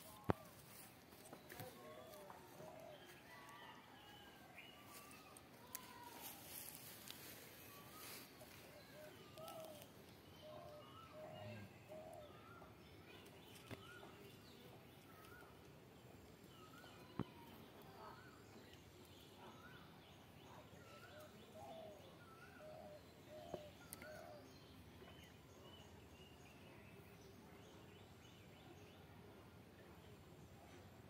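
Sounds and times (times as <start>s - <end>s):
faint bird chirps: 0.0s - 15.7s.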